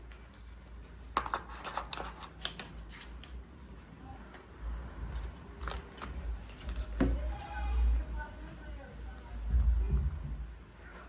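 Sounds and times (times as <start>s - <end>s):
hands handling phone packaging: 0.0s - 3.4s.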